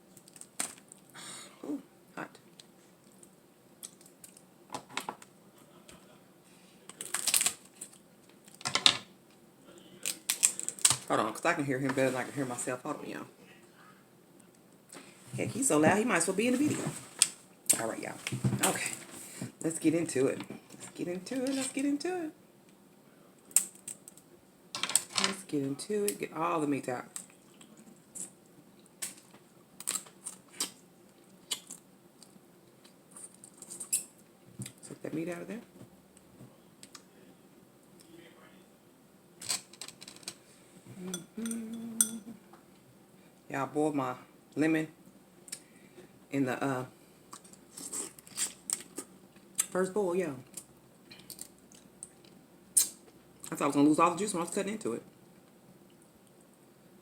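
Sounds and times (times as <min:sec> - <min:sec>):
crab shell cracking: 0:06.9 - 0:08.6, 0:10.0 - 0:11.0.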